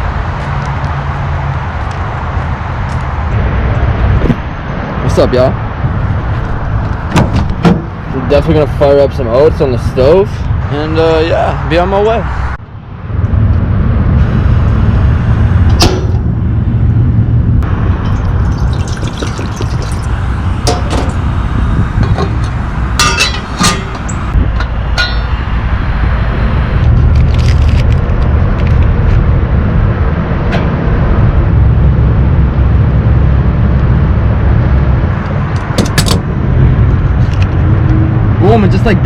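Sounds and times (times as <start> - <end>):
steady low rumble: 0.0 - 39.0
cookware clinking: 23.0 - 24.2.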